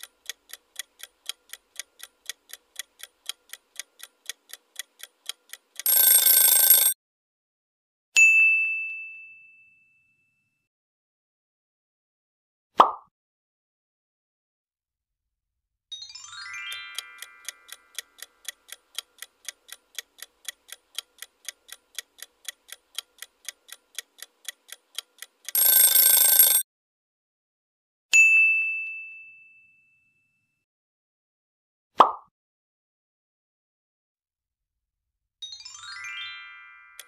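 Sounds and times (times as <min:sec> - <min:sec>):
clock-like ticking: 0:00.0 - 0:07.0, 0:16.7 - 0:26.6
bell ding: 0:08.2 - 0:10.6, 0:28.2 - 0:30.4.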